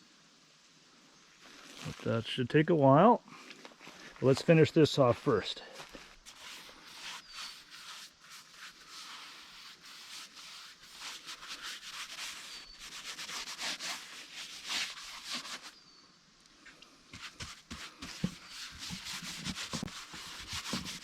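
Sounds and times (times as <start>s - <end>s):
rubbing and scraping on wood: 4.0s - 15.8s, 17.1s - 21.0s.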